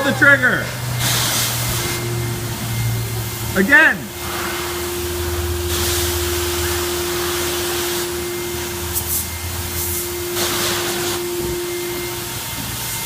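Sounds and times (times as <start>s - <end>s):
machine hum: 0.0s - 13.0s
pressure spray wand hissing: 0.8s - 2.1s, 4.1s - 12.9s.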